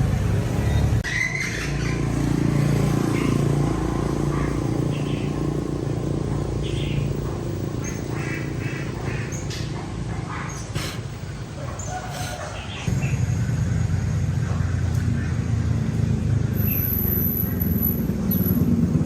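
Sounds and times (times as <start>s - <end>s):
motorbike engine idling: 1.6s - 11.0s.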